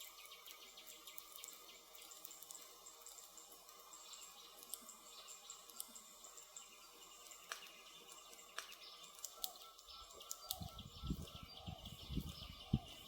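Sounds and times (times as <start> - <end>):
wood fire crackling and popping: 7.2 - 13.0.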